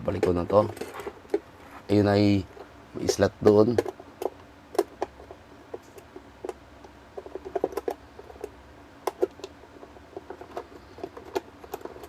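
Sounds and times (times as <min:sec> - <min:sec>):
small parts clicking and knocking: 0:00.0 - 0:01.7, 0:02.4 - 0:12.0.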